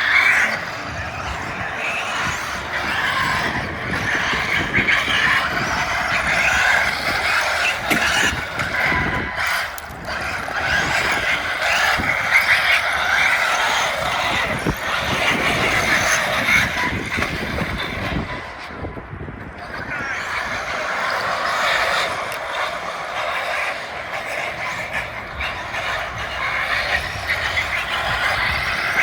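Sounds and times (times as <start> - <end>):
toy car electric motors whining: 0.0 - 18.3, 19.8 - 29.0
tyres scrabbling over ground: 0.0 - 18.4.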